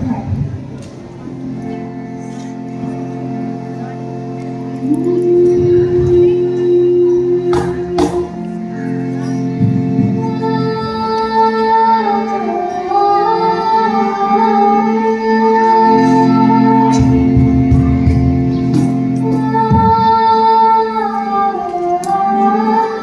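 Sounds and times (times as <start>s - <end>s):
sustained instrumental accompaniment: 0.0s - 23.0s
girls singing folk song: 4.8s - 23.0s.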